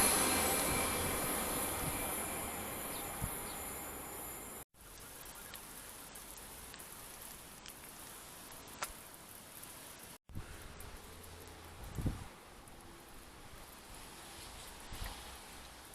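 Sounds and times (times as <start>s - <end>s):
faint outdoor hiss: 0.0s - 15.9s.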